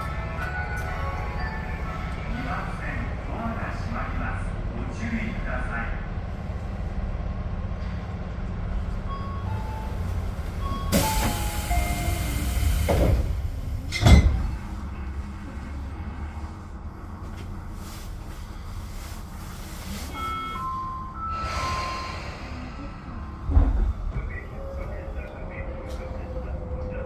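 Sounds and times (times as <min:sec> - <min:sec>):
electric train rumbling: 0:00.0 - 0:27.0
loud rushing noise: 0:21.3 - 0:24.2.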